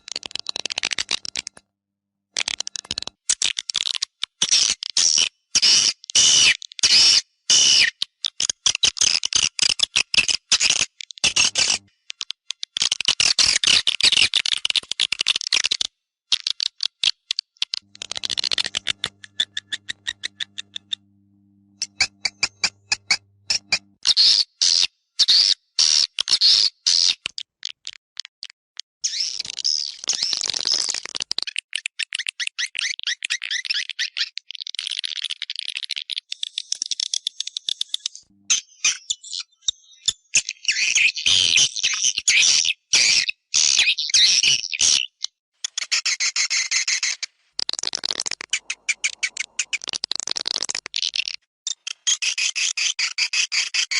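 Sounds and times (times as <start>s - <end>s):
swiftlet clicks and chirps: 11.2s - 13.0s, 16.4s - 24.1s, 45.7s - 52.3s.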